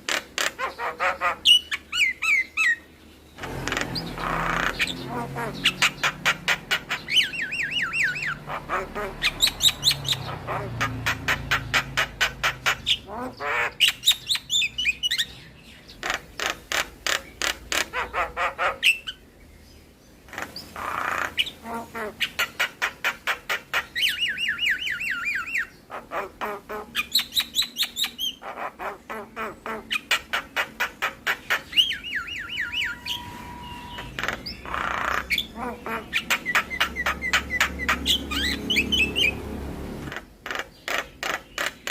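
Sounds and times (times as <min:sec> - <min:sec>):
bird chattering song: 0:00.0 - 0:41.9
bird whistle: 0:31.8 - 0:35.4.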